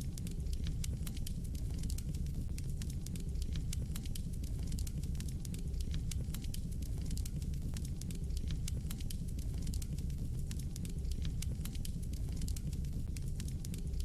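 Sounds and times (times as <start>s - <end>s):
fire crackling and popping: 0.0s - 14.0s
low rumble of flames: 0.0s - 14.0s.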